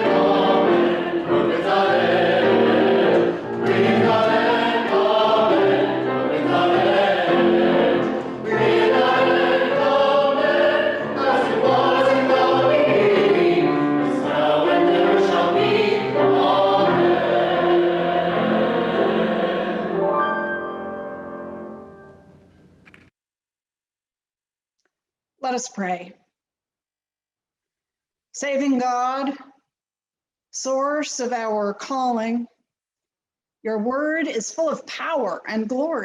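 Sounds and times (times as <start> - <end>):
choir singing: 0.0 - 21.0.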